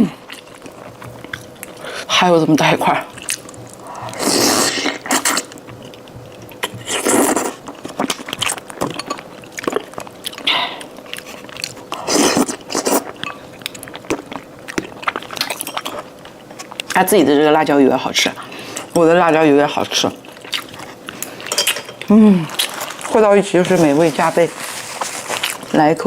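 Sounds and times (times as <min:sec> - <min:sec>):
wet chewing with mouth clicks: 0:00.1 - 0:17.0, 0:19.9 - 0:23.2, 0:24.6 - 0:25.8
loud noisy mouthfuls: 0:03.8 - 0:05.5, 0:11.9 - 0:13.0.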